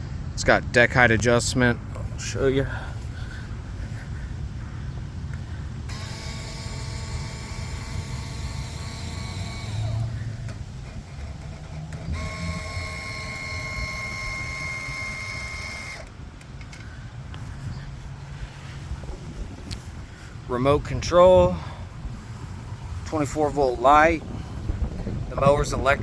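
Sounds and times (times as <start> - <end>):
small motor whining: 5.3 - 17.4.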